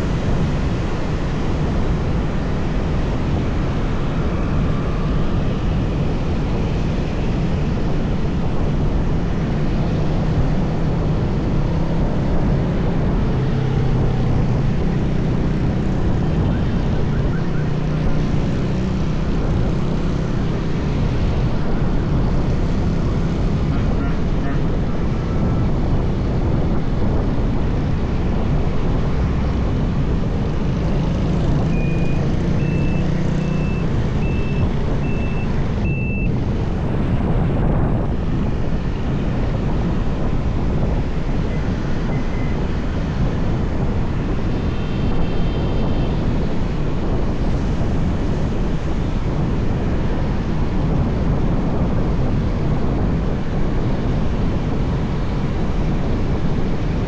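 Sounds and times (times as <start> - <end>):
traffic noise: 0.0 - 57.0
wind rushing: 0.0 - 57.0
short high beeps: 31.7 - 36.3.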